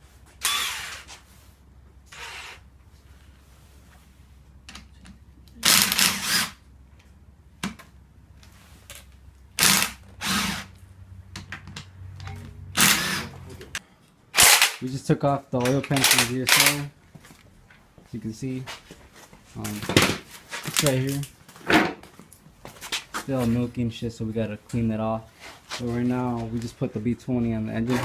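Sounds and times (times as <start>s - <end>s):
power tool running in bursts: 0.4s - 1.1s, 5.6s - 6.6s, 9.6s - 10.7s, 12.8s - 13.4s, 14.4s - 14.8s.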